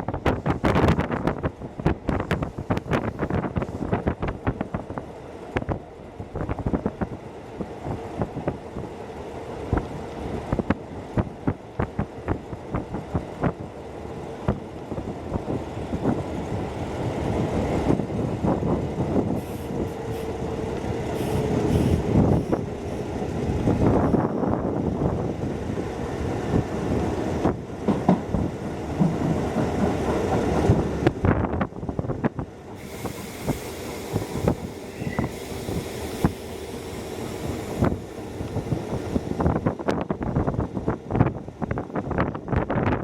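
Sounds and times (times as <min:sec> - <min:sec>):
train running hum: 0:00.0 - 0:43.0
train wheels clicking over rail joints: 0:14.4 - 0:31.3, 0:32.2 - 0:40.2.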